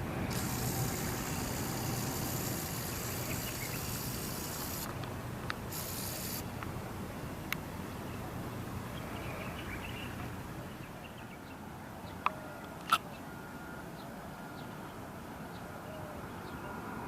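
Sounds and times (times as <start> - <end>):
camcorder zoom motor whining: 0.3 - 5.0, 5.6 - 6.6.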